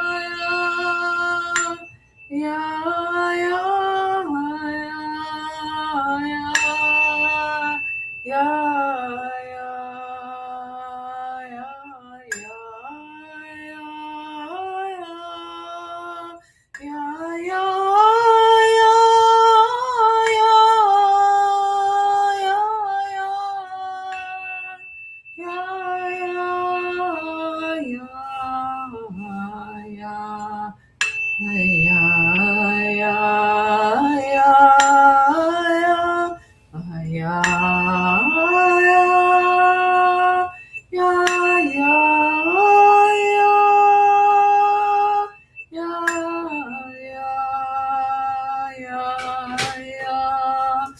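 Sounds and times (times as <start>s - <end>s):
tuning fork ringing: 0.0s - 50.9s
woman singing held vowel tones: 0.0s - 50.9s.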